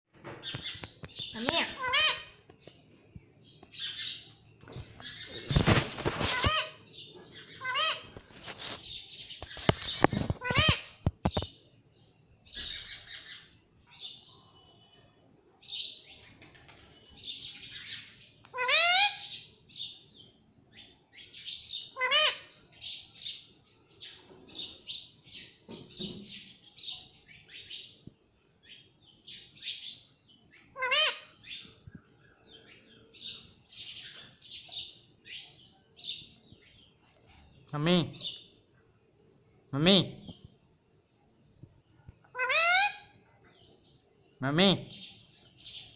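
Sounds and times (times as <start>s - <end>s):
parrot chirping and chattering: 0.5s - 2.4s, 4.8s - 8.8s, 9.4s - 11.5s, 17.6s - 19.5s, 42.3s - 43.2s.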